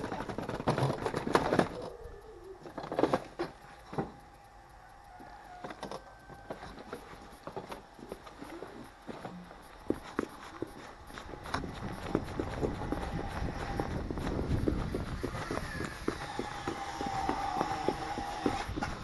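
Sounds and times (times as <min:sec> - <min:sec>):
faint bird calls: 0:01.5 - 0:06.9.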